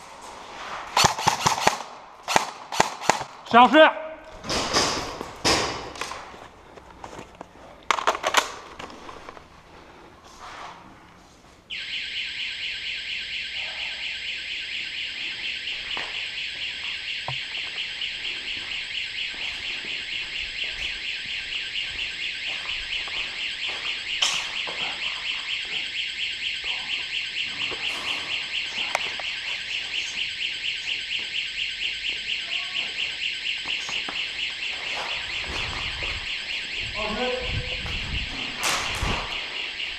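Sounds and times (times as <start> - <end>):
shrill pulsing electronic alarm: 11.7 - 39.9.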